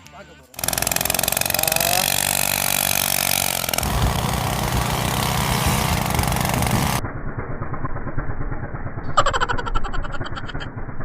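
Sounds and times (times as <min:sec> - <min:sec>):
moped engine exhaust beat: 0:00.5 - 0:07.0.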